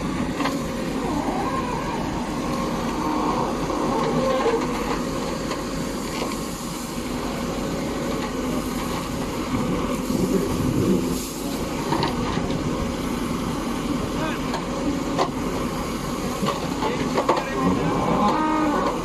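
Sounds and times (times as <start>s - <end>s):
heavy machinery engine running: 0.0s - 19.0s.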